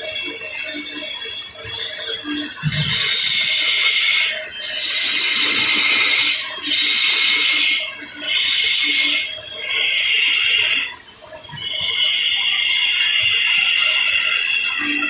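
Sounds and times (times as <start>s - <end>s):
woodworking tool rasping hiss: 3.0s - 10.9s.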